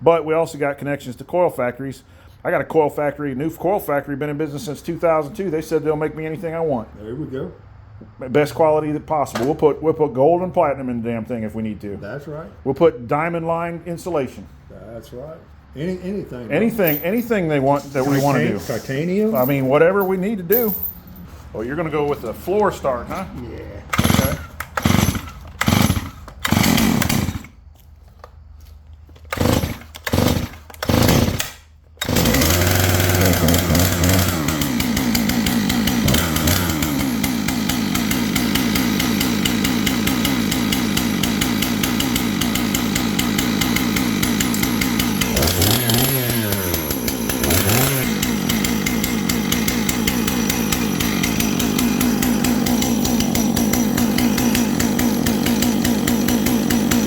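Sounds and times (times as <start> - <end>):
chainsaw engine running: 16.7 - 21.0, 21.6 - 57.0
chainsaw starter cord yanks: 16.8 - 18.6, 19.2 - 21.1, 23.1 - 57.0.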